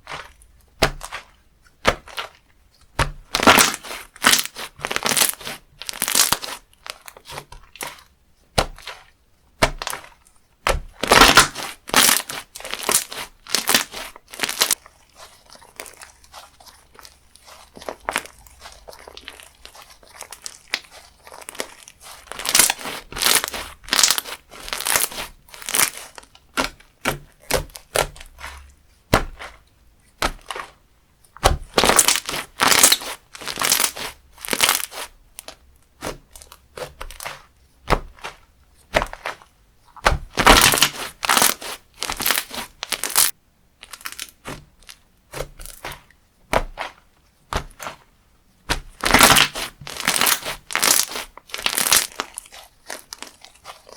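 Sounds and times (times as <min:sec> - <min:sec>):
crunchy slime crackling: 0:00.0 - 0:30.8, 0:31.4 - 0:53.9
slime squishing: 0:00.0 - 0:53.9.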